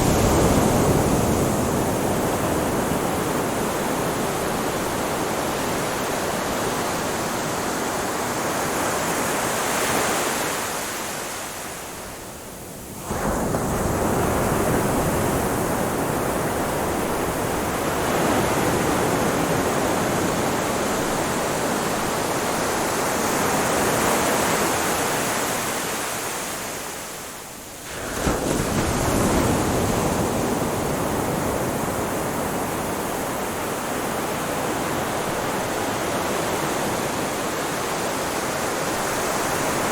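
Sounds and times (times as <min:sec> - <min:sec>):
ocean waves breaking: 0:27.8 - 0:39.9.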